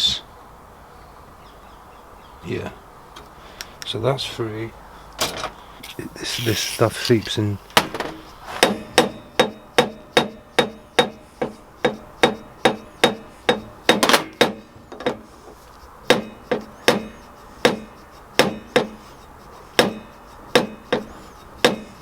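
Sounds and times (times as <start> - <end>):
hammer tapping on metal: 7.8 - 15.2, 16.0 - 19.1, 19.8 - 22.0.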